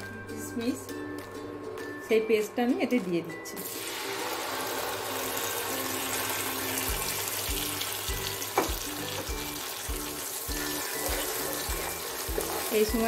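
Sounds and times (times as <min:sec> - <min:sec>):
background music with a beat: 0:00.0 - 0:02.1, 0:05.4 - 0:13.0
paste sizzling in a frying pan: 0:03.6 - 0:13.0.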